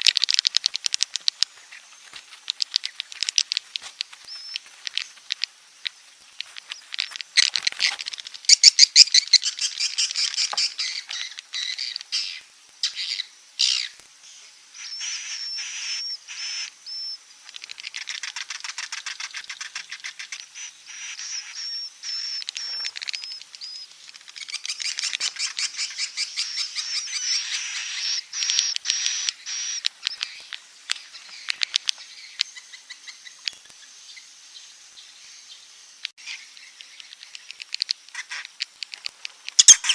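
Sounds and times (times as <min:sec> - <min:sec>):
rapid bird clicks: 0:00.0 - 0:12.2, 0:17.4 - 0:20.5, 0:22.1 - 0:25.8, 0:28.4 - 0:32.7, 0:36.6 - 0:39.9
swiftlets twittering: 0:39.5 - 0:39.9.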